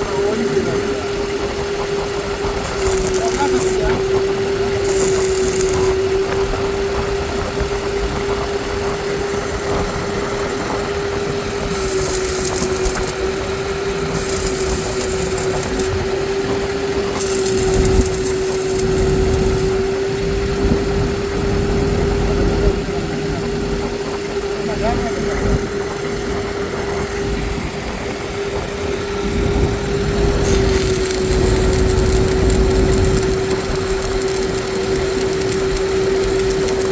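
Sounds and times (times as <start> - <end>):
engine humming steadily: 0.0 - 36.9
high hiss bursts: 29.6 - 36.9.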